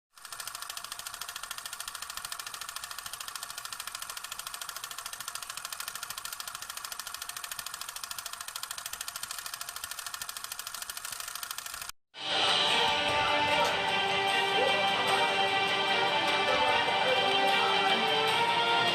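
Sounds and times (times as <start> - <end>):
rapid mechanical clicking: 0.1 - 12.0.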